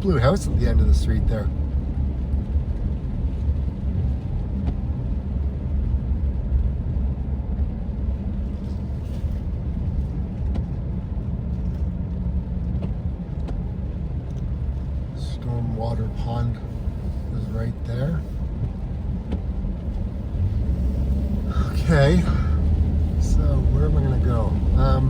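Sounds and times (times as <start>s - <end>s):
engine and road rumble: 0.0s - 25.0s.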